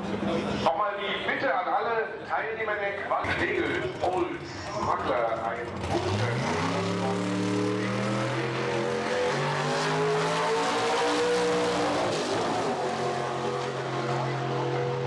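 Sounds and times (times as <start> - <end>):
broad rush of noise: 0.0 - 15.0
race car engine at full throttle: 3.2 - 15.0.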